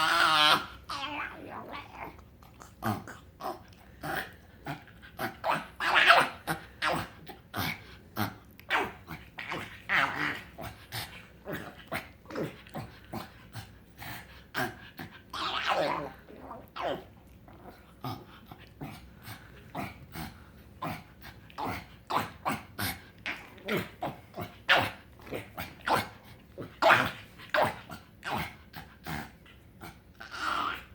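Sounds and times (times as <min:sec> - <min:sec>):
dog whining and grumbling: 0:00.0 - 0:07.4, 0:14.6 - 0:18.4, 0:30.2 - 0:30.9.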